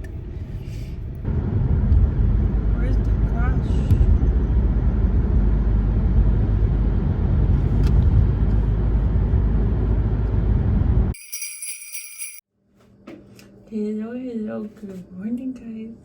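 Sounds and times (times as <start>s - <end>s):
car cabin low rumble: 0.0s - 11.1s
bright high chime: 11.2s - 12.4s.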